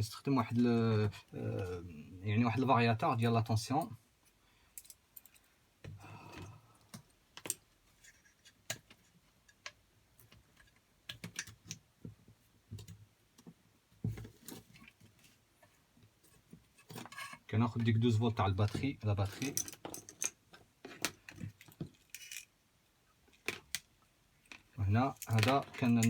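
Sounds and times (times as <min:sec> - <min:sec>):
clicks of electrical parts handled: 0:24.5 - 0:26.0.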